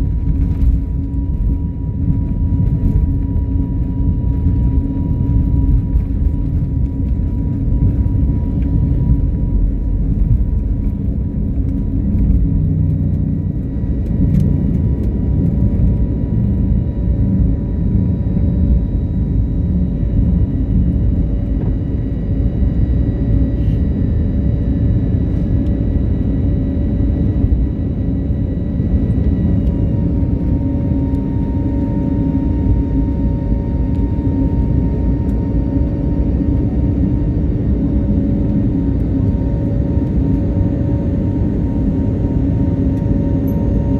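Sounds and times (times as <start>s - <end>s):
airliner engines roaring on takeoff: 0.0s - 43.9s.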